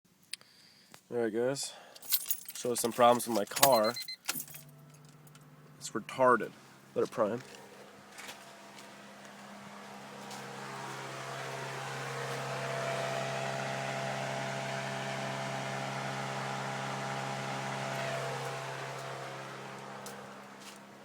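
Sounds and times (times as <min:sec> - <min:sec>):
fuel pump electric whir: 0:06.5 - 0:21.0.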